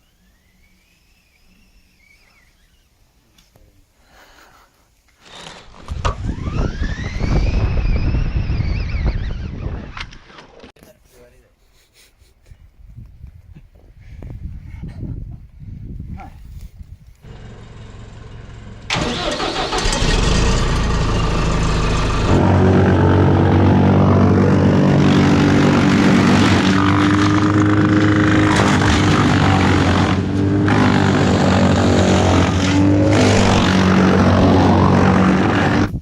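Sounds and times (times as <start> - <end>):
engine running loudly: 17.3 - 36.0.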